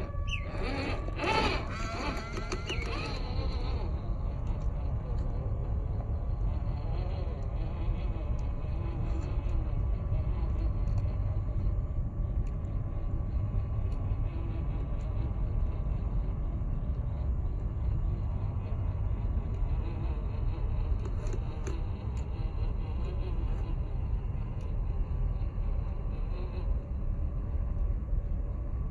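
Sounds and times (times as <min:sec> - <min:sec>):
toy truck electric motor buzzing: 0:00.0 - 0:09.6.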